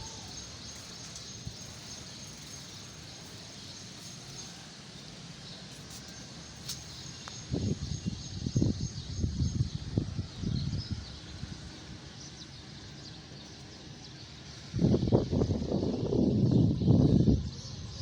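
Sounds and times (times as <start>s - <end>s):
steady even hiss: 0.0s - 8.3s.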